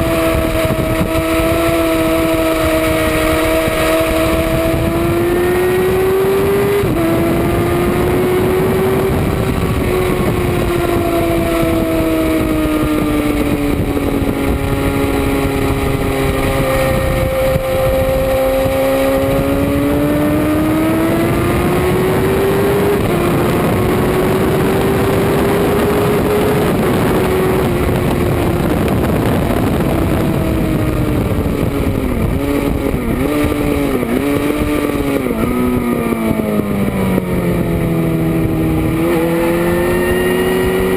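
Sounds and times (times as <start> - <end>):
motorcycle engine revving: 0.0 - 40.9
wind rush: 0.0 - 40.9.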